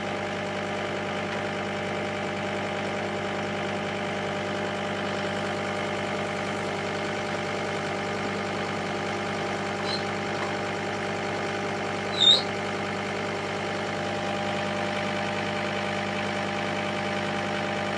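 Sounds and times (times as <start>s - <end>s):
vehicle engine idling: 1.9s - 17.9s
short high-pitched chirp: 9.8s - 10.2s, 12.1s - 12.5s.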